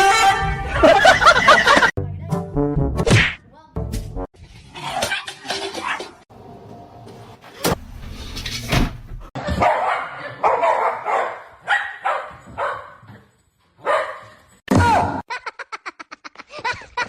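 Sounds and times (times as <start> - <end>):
dog barking: 9.4 - 13.0, 13.8 - 14.4.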